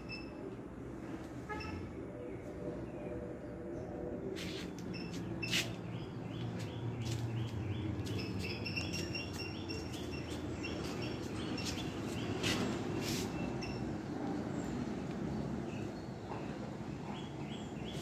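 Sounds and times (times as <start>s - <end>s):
small birds chirping: 4.4s - 13.8s.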